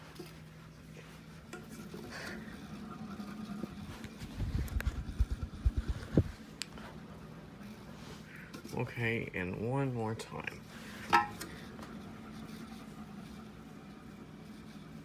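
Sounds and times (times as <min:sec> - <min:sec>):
ceiling fan motor humming: 0:00.0 - 0:15.0.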